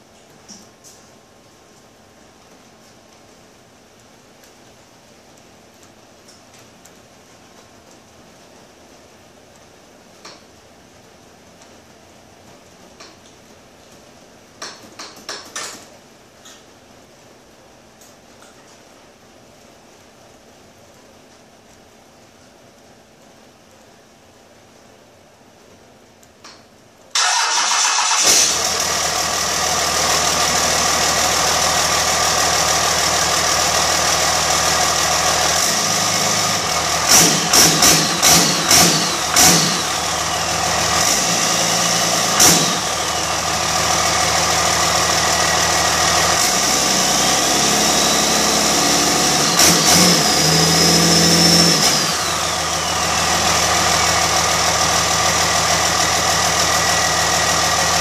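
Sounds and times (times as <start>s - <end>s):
diesel engine idling and revving: 27.2s - 58.0s.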